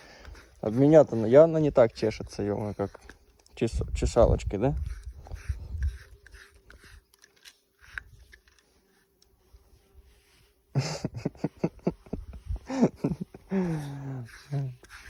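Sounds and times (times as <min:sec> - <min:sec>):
rasping scratching strokes: 0:00.0 - 0:15.0.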